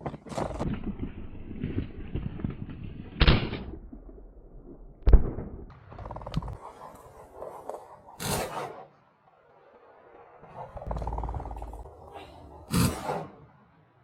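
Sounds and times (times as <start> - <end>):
shotgun shots: 8.2 - 8.9, 12.7 - 13.4.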